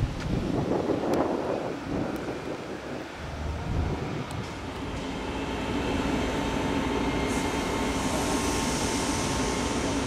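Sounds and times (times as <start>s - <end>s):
wind buffeting microphone: 0.0s - 8.0s
train rumbling: 0.0s - 10.0s.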